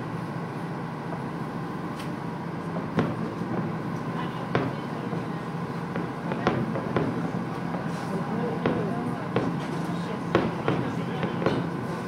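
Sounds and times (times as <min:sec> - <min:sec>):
low drone inside boat cabin: 0:00.0 - 0:12.0
fireworks bursting: 0:02.6 - 0:12.0.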